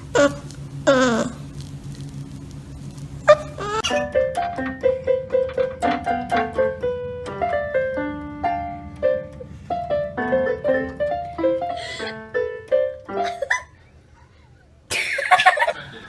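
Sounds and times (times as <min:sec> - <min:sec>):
piano melody: 0:03.2 - 0:13.7.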